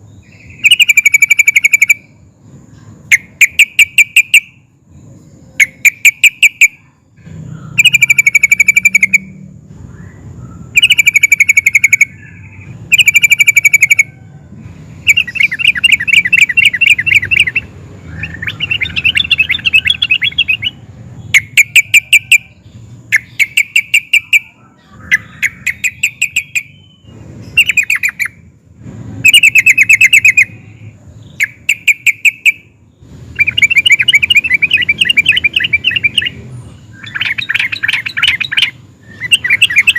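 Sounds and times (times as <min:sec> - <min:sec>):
bird singing bubbly phrases: 0:00.0 - 0:02.4, 0:07.5 - 0:14.0, 0:15.0 - 0:28.4, 0:33.3 - 0:39.9.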